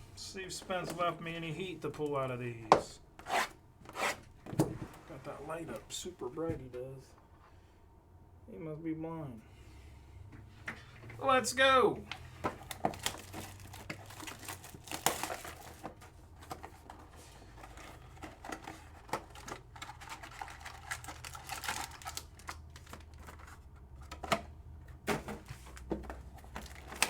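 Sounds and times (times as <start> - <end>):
card packs tapping and clicking: 12.4 - 27.0
wrapper and cardboard rustling: 12.6 - 24.1, 25.2 - 27.0.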